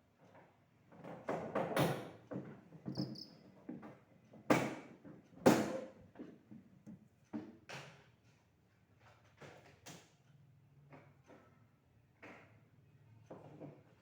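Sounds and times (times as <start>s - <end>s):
short high squeaks: 2.9s - 3.4s.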